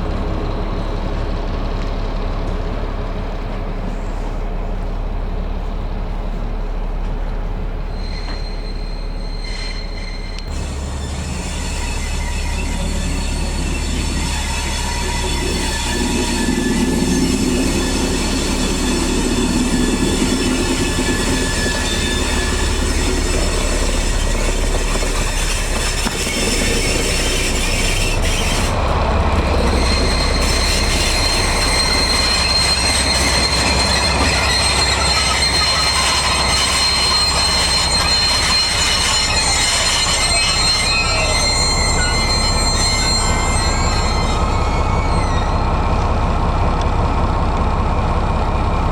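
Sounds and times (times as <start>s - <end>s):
low rumble of train: 0.0s - 48.9s
steel wheels squealing on rails: 0.0s - 48.9s
thin high squeal: 7.9s - 46.0s.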